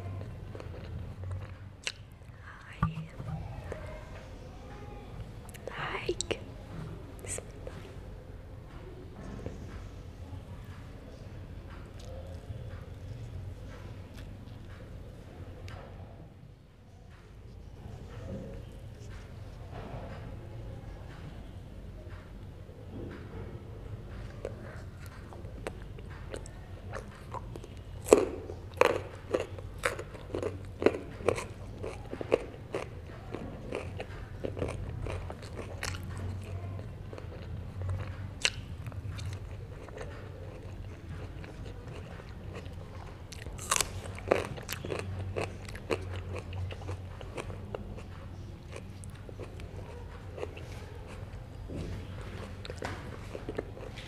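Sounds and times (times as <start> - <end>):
steady low hum: 0.0 - 53.8
close chewing and biting: 0.1 - 4.1, 24.2 - 54.0.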